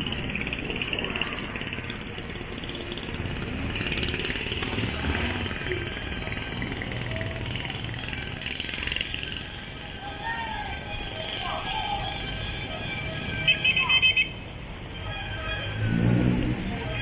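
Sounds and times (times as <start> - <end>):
vehicles passing: 0.0 - 17.0.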